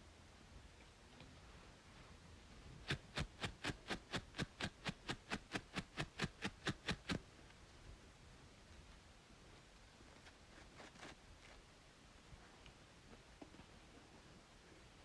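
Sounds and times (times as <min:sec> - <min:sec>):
faint steady hiss: 0:00.0 - 0:15.0
brisk scratching on scalp: 0:02.8 - 0:07.2.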